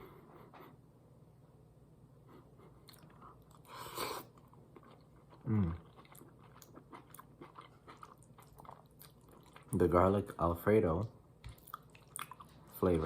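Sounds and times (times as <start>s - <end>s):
person chewing food: 2.6s - 9.9s, 11.4s - 13.0s.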